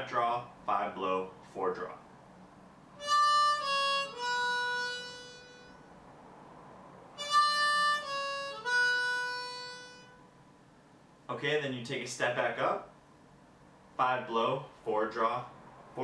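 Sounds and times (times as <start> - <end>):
harmonica playing single notes: 3.0 - 5.9, 7.2 - 10.3.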